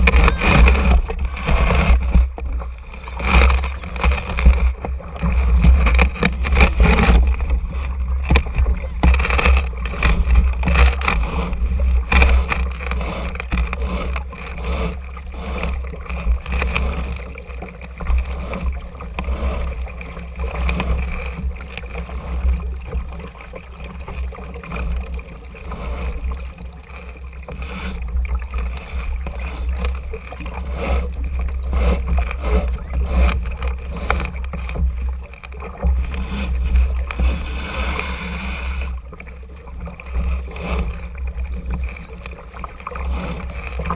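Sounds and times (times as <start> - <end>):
short knocks and ticks: 0.0 - 23.0, 24.1 - 27.7, 28.5 - 37.3, 39.2 - 43.9
water slapping against hull: 0.0 - 43.9.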